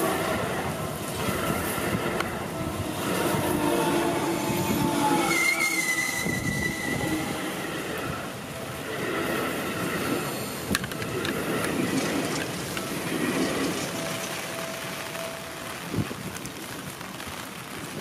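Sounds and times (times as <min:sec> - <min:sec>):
train wheels rumbling on rails: 0:00.0 - 0:18.0
thin high squeal: 0:04.5 - 0:07.6.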